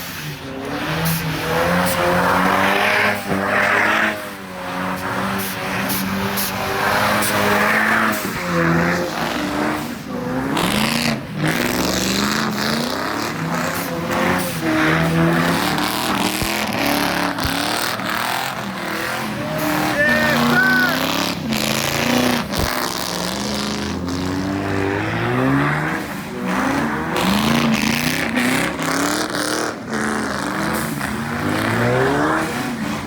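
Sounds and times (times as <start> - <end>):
car engine revving: 0.0 - 33.0
tyre squeal: 16.7 - 21.4.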